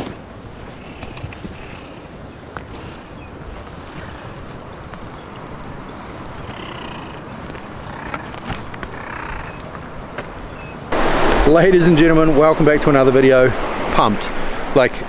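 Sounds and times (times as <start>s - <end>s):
brushing vegetation: 0.0s - 5.4s
small bird chirping: 0.2s - 5.3s, 5.9s - 10.8s.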